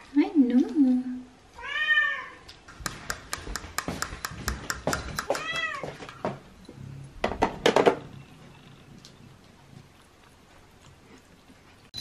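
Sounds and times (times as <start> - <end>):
cat meowing: 1.6 - 2.4, 5.4 - 5.9.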